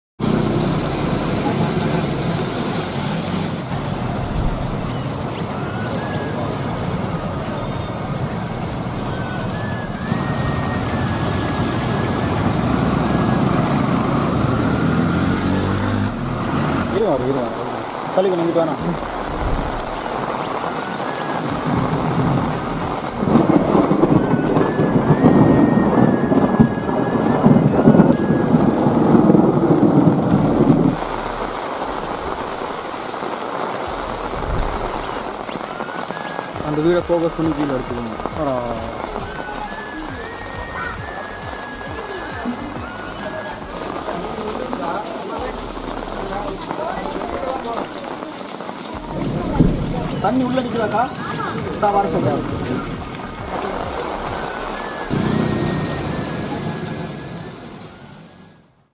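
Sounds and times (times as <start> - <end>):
heavy rain falling: 0.2 - 58.9.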